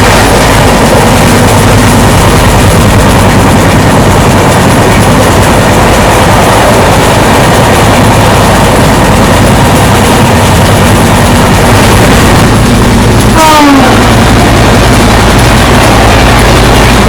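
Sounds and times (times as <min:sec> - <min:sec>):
train rail rumble: 0:00.0 - 0:17.0
train horn blast: 0:12.1 - 0:17.0.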